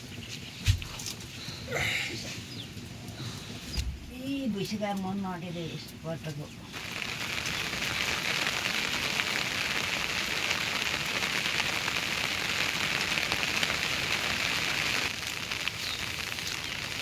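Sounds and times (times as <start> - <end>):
heavy rain falling: 6.8 - 17.0.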